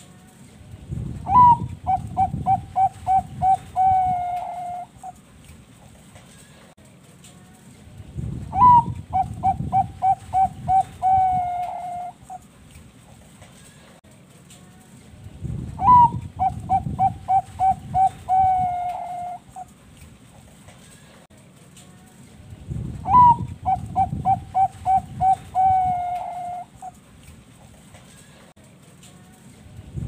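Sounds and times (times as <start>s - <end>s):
dove cooing song: 1.3s - 5.2s, 8.5s - 12.4s, 15.8s - 19.7s, 23.0s - 27.0s.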